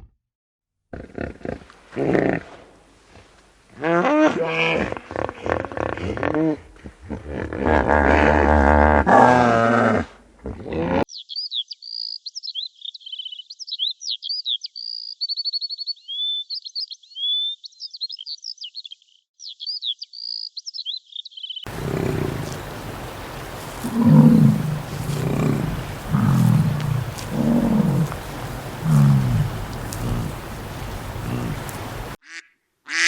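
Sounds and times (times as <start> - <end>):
small bird chirping and trilling: 11.1 - 32.2
low rough animal calls: 21.7 - 32.2.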